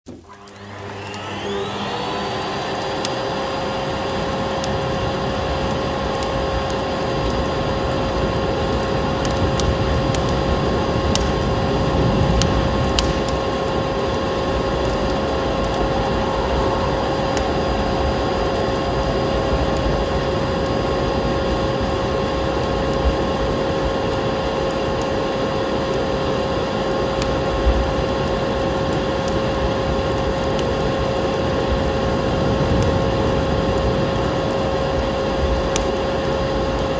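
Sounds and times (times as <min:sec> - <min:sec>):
vacuum cleaner running: 0:00.1 - 0:36.9
wood fire crackling: 0:00.4 - 0:36.9.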